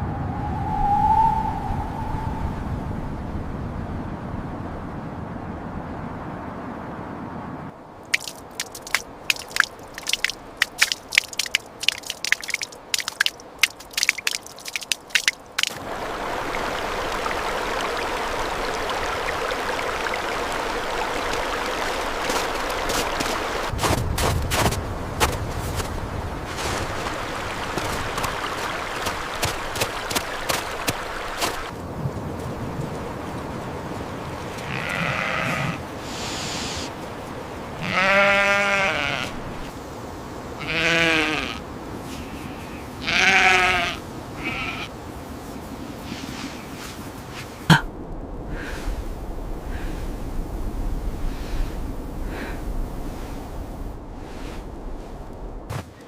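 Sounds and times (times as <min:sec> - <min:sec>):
animal bleating: 0:34.7 - 0:35.8, 0:37.8 - 0:39.4, 0:40.6 - 0:41.6, 0:42.3 - 0:44.9.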